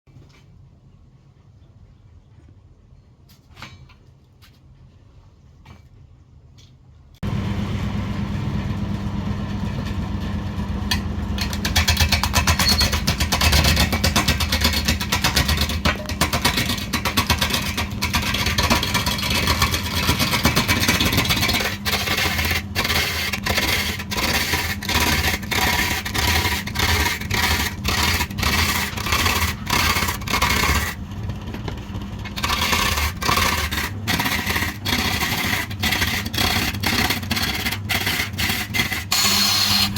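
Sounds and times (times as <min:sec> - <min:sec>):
woodworking machine motor hum: 0:07.2 - 0:39.9
tool cutting and scraping wood: 0:09.7 - 0:31.3, 0:32.2 - 0:39.9.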